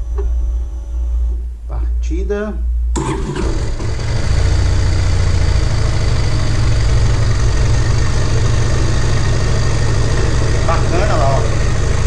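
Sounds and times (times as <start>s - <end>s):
motorcycle engine starting and idling: 3.0s - 12.0s.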